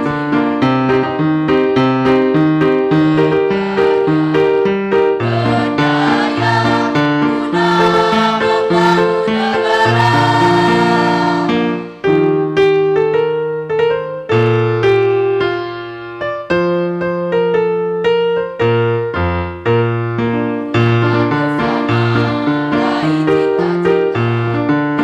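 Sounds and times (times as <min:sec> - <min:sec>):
choir singing a march: 0:03.3 - 0:12.0, 0:21.0 - 0:24.2.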